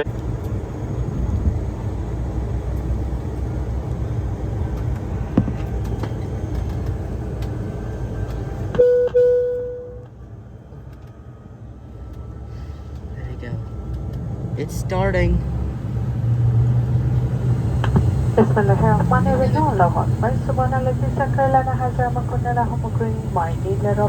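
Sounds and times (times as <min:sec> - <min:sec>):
cabin ventilation rumble: 0:00.0 - 0:24.0
short steady tone: 0:08.8 - 0:10.1.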